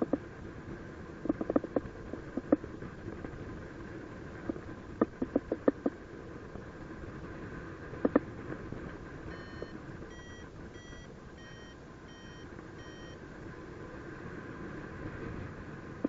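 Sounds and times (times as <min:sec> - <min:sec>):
variometer beeping: 0:09.3 - 0:13.3.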